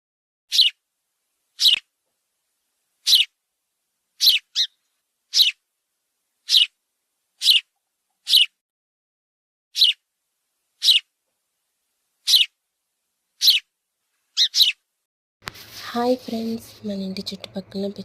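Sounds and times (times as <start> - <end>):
sparrow chirping: 0.5 - 0.8, 1.5 - 1.9, 3.0 - 3.4, 4.2 - 5.6, 6.4 - 6.8, 7.4 - 8.6, 9.7 - 10.0, 10.8 - 11.1, 12.2 - 12.6, 13.4 - 13.7, 14.3 - 14.8.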